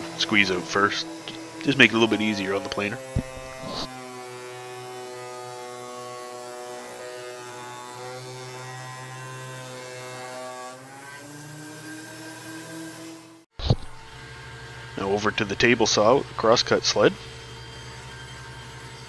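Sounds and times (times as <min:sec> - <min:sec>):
planer motor buzzing hum: 0:00.0 - 0:15.0.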